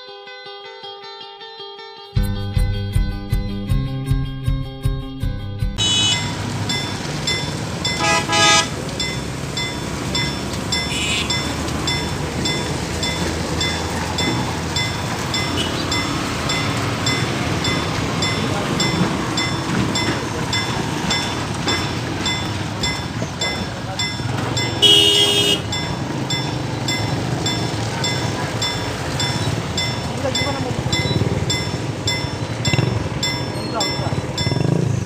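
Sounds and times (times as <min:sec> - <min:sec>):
train horn blasts: 0:05.8 - 0:06.4, 0:08.0 - 0:08.8, 0:10.8 - 0:11.6, 0:24.8 - 0:25.8
higher horn toot: 0:05.8 - 0:06.6, 0:08.0 - 0:08.9, 0:10.8 - 0:11.7, 0:15.4 - 0:16.3, 0:24.7 - 0:25.8
heavy rain: 0:05.8 - 0:34.8
train running: 0:05.8 - 0:35.0.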